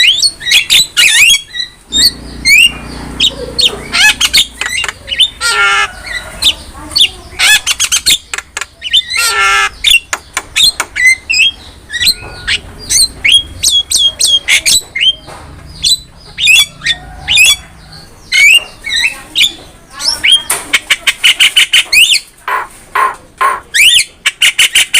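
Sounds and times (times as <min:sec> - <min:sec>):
bird harsh rasping squawks: 0:00.0 - 0:15.2, 0:15.8 - 0:24.9
bird whistles and chirps: 0:10.6 - 0:15.2.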